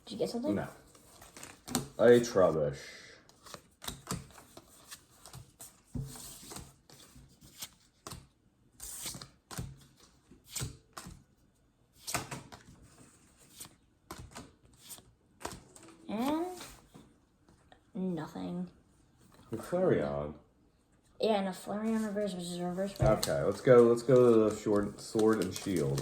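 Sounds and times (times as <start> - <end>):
trading cards flicking and rustling: 0.2 - 2.5, 3.3 - 11.2, 12.0 - 17.1, 21.9 - 26.0.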